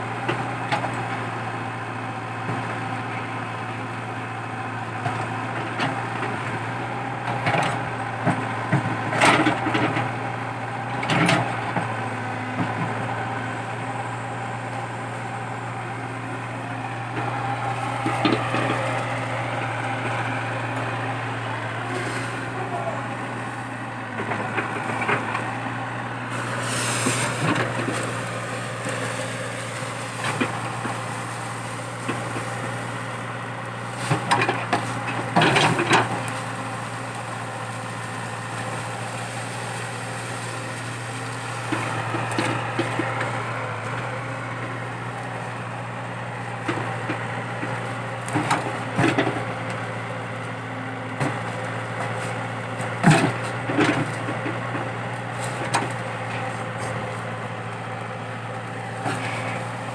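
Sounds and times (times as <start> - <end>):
excavator diesel engine running: 0.0 - 59.9
roots and wood cracking: 23.2 - 59.9.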